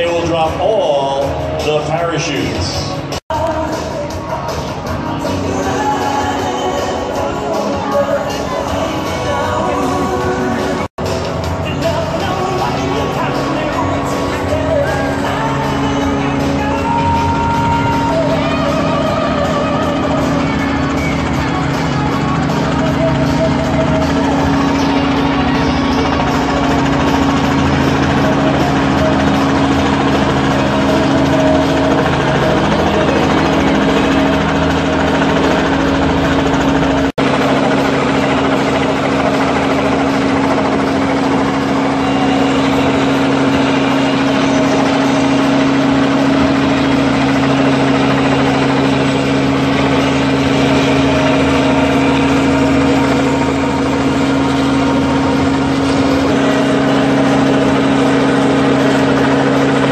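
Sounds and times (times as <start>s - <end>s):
helicopter hovering: 0.0s - 59.9s.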